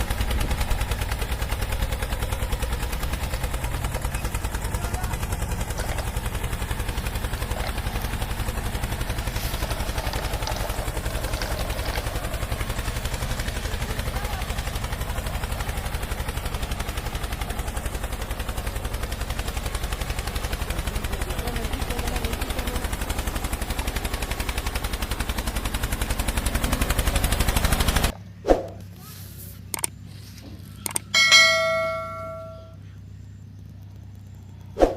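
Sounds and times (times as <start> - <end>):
tractor engine chugging: 0.0 - 34.7
sharp clicks: 29.7 - 30.0, 30.8 - 31.1.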